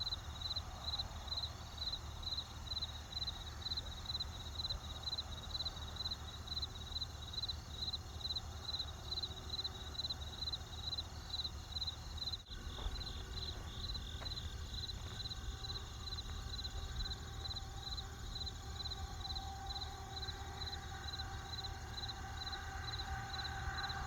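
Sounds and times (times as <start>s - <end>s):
crickets chirping: 0.0s - 24.0s
faint steady high tone: 12.3s - 24.0s
low steady rumble: 12.4s - 24.0s.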